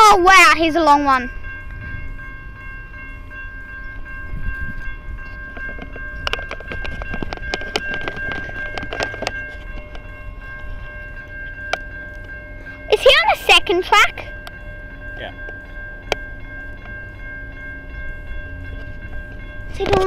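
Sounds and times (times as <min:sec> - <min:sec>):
high ringing tone: 0:00.0 - 0:20.0
train rumbling past: 0:00.0 - 0:20.0
sharp wheel clacks: 0:05.6 - 0:10.1.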